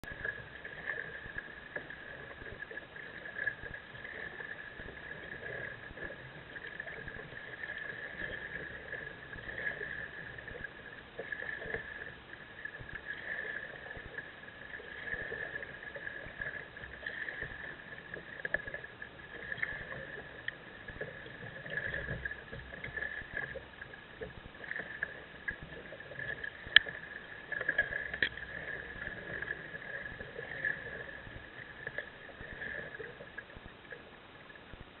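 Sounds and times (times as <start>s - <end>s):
kayak paddle splashing water: 0.0s - 34.2s.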